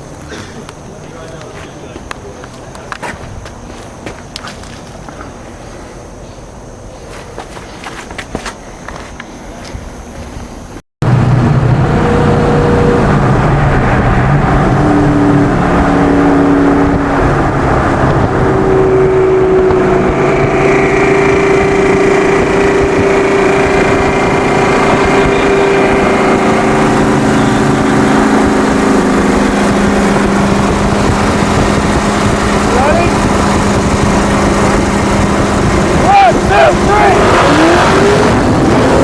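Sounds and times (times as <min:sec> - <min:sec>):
high engine whine: 0:00.0 - 0:39.0
engine at full throttle: 0:11.0 - 0:39.0.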